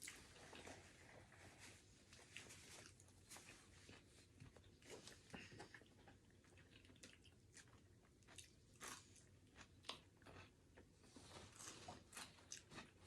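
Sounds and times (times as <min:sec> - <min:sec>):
chewing with crunchy clicks: 0:02.1 - 0:13.0.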